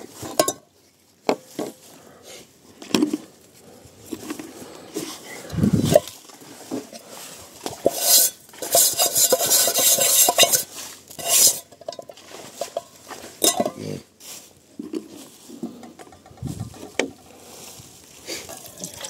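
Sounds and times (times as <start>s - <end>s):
metal utensils clinking and scraping: 0.1s - 0.6s, 7.8s - 14.0s, 18.3s - 19.0s.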